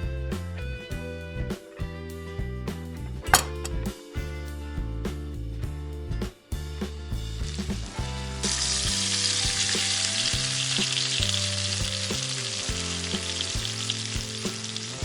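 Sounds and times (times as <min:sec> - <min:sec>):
soft background music: 0:00.0 - 0:15.0
food sizzling in hot oil: 0:08.4 - 0:15.0.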